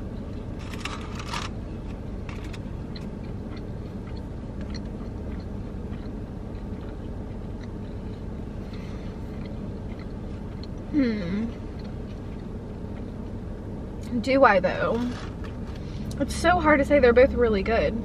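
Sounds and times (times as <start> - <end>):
person chewing: 0.0 - 13.4
low rumble: 0.0 - 18.0
crisp crinkling: 0.6 - 1.6.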